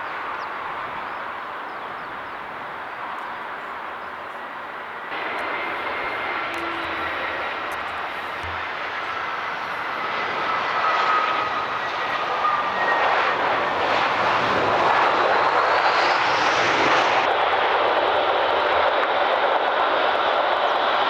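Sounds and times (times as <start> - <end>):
jet engines passing close: 0.0 - 21.0.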